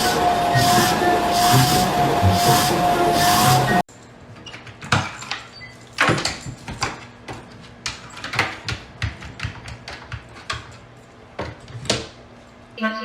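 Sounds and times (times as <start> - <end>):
irregular knocks and clicks: 6.0 - 10.8.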